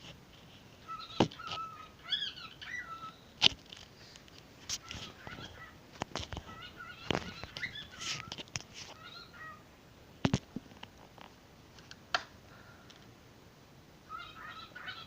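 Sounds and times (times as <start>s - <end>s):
pet bird chattering: 0.8s - 3.2s, 6.4s - 9.6s, 14.1s - 15.0s.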